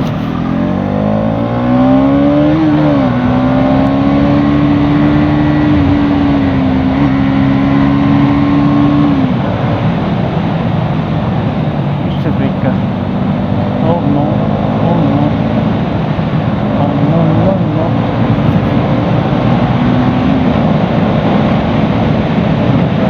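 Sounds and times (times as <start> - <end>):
motorcycle engine revving: 0.0 - 10.3, 11.8 - 23.0
wind and road noise: 0.0 - 23.0.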